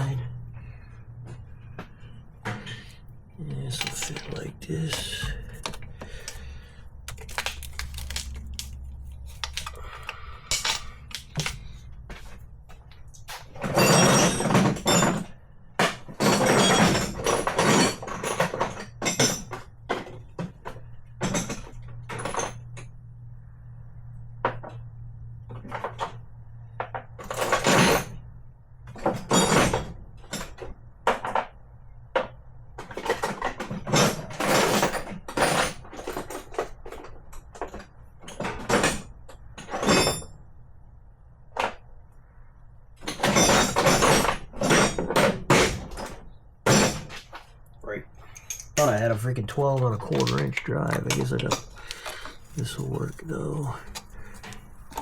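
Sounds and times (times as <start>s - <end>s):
metal tools clattering: 3.5s - 11.8s, 13.6s - 15.3s, 16.2s - 19.6s, 43.1s - 47.2s, 48.2s - 55.0s.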